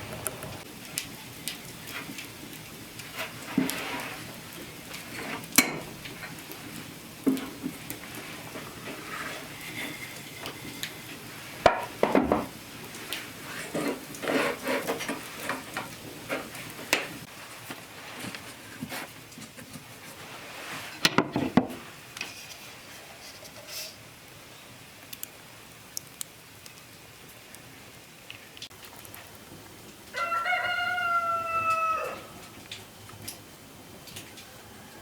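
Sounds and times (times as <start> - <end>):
kitchen utensils clattering: 5.0 - 6.4, 7.3 - 12.6, 13.4 - 17.3.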